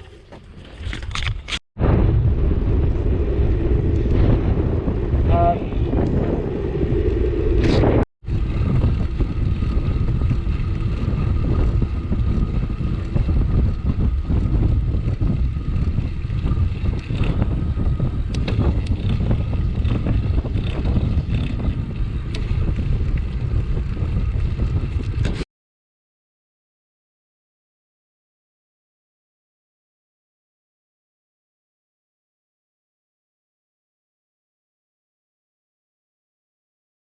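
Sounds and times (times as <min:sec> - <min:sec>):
wind rumble on microphone: 0:00.0 - 0:25.5.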